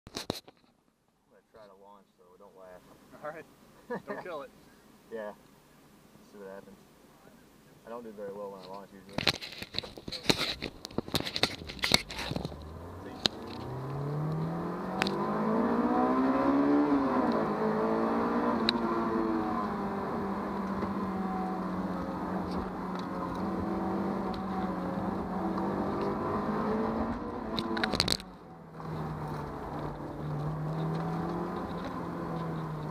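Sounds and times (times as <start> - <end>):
car engine accelerating: 11.2 - 32.9.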